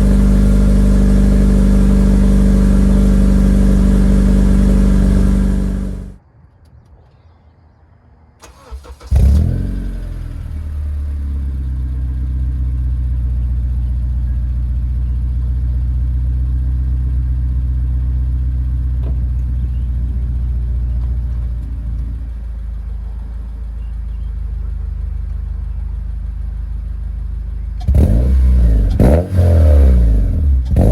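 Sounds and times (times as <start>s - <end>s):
car engine running and idling: 0.0s - 6.2s, 8.5s - 30.9s
engine rev flare: 0.0s - 6.2s, 8.4s - 18.2s, 26.5s - 30.9s
engine cranking: 8.4s - 9.5s.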